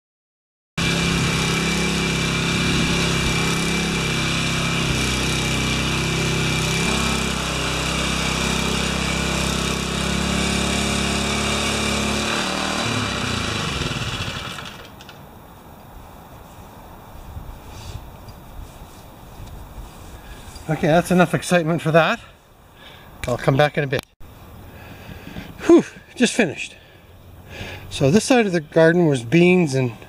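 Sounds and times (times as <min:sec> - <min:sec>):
rototiller engine tilling soil: 0:00.8 - 0:15.1.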